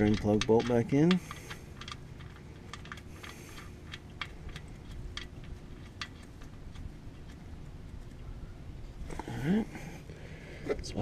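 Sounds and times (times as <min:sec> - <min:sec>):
metallic clicks of bolt threading: 0:00.0 - 0:08.2
faint steady hum: 0:00.0 - 0:11.0.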